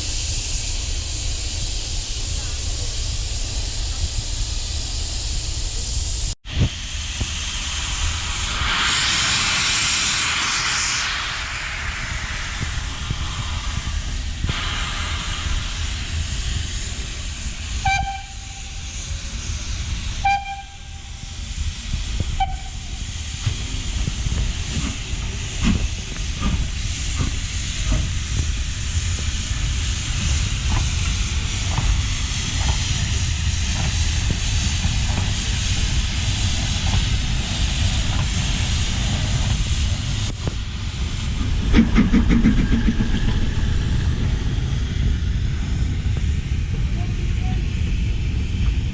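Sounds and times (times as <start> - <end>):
low rumble: 0.0 - 48.9
steam hissing: 0.0 - 48.9
steam locomotive chuffing beats: 0.0 - 48.9
train whistle toots: 17.7 - 18.9, 20.2 - 21.4, 22.3 - 23.0.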